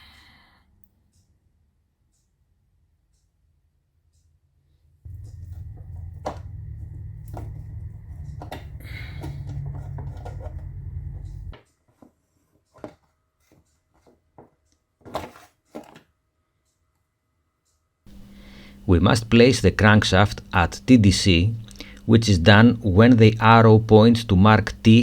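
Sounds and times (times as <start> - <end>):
steady low rumble: 5.1 - 11.6, 18.1 - 25.0.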